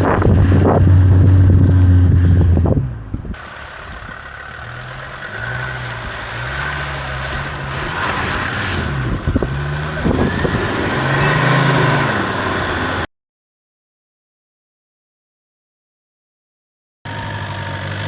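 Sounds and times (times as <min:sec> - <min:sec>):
engine revving: 0:00.0 - 0:13.1.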